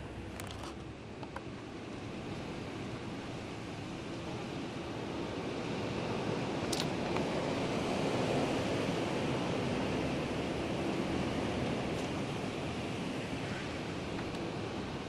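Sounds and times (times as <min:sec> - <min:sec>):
sharp click: 0:06.7 - 0:06.9.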